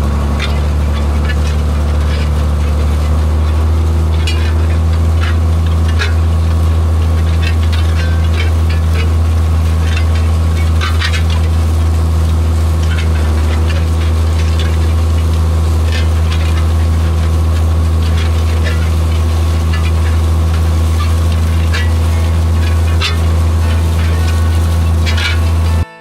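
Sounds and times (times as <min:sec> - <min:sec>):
tractor engine running steadily: 0:00.0 - 0:25.9
light rattles and ticks: 0:00.3 - 0:25.8.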